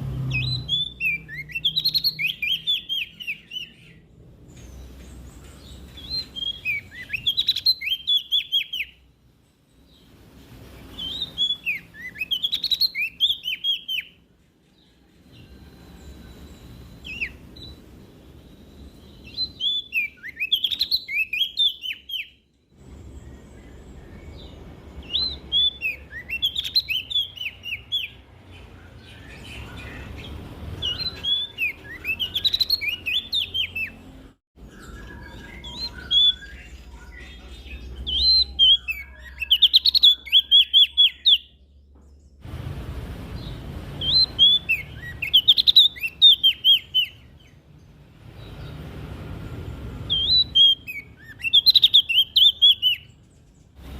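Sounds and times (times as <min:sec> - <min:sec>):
bird chirping phrases: 0:00.0 - 0:42.4, 0:43.3 - 0:53.9.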